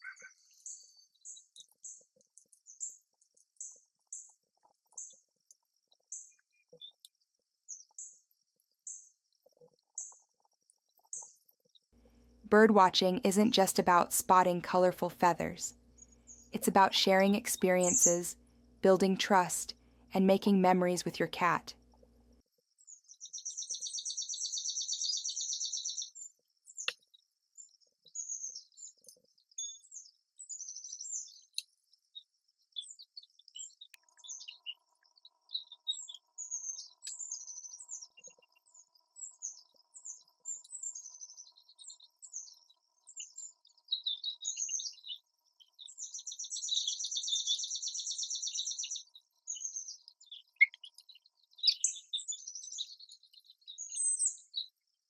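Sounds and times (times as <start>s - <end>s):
songbirds chirping: 0.0s - 55.0s
rapid buzzy bird trill: 32.7s - 54.5s.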